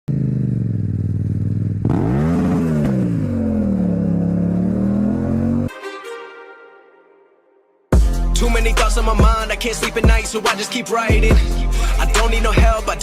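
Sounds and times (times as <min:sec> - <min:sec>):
motorcycle engine revving: 0:00.1 - 0:05.7.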